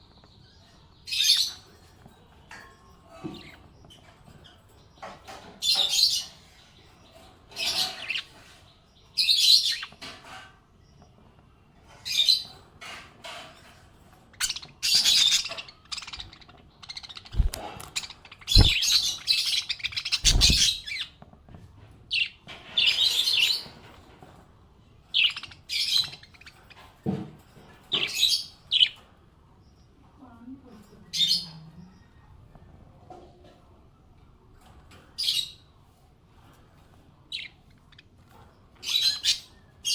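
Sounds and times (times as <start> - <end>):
parrots chirping and twittering: 0.0 - 32.9, 33.5 - 39.9
low thumps: 18.5 - 18.8.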